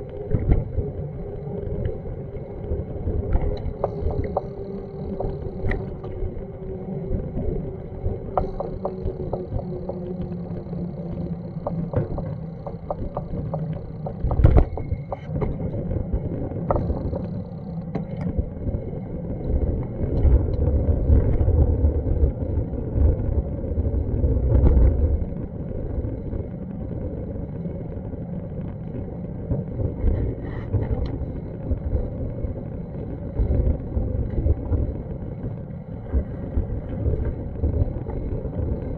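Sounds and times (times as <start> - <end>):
scattered clicks and knocks: 8.3 - 10.4, 11.4 - 15.6.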